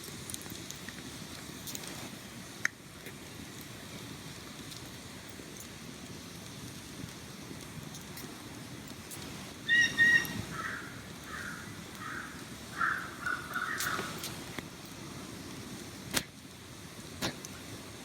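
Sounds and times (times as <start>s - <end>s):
outdoor background noise: 0.0s - 18.0s
bird calling: 9.6s - 14.3s.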